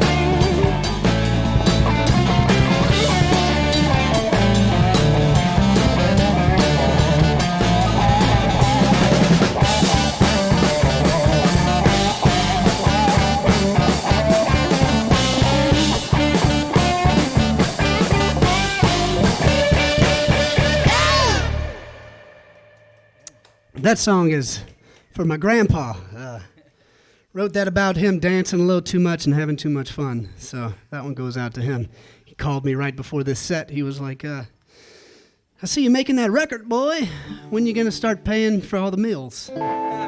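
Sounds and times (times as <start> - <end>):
live band playing funky soul: 0.0 - 22.3.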